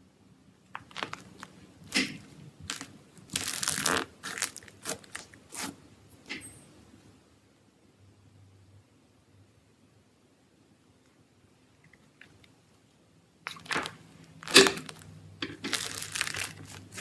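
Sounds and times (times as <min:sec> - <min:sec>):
slime squished by hand: 0:13.4 - 0:15.0.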